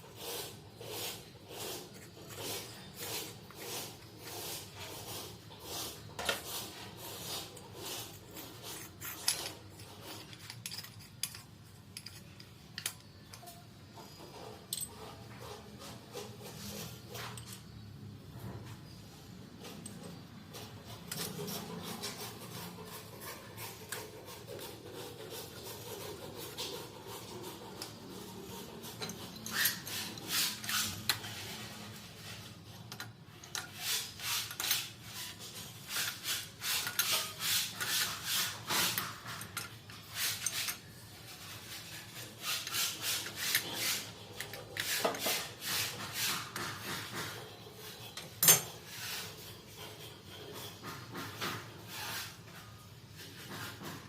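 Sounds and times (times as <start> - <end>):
scraping on plumbing fittings: 0.0 - 54.0.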